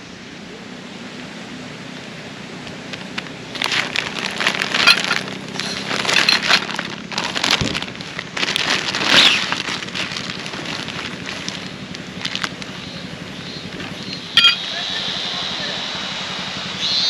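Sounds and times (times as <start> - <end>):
rustling and crackling handling noise: 2.6 - 14.6.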